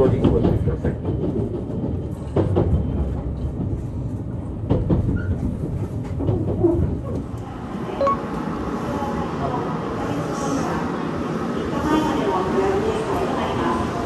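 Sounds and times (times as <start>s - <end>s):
train rumbling into station: 0.0s - 14.0s.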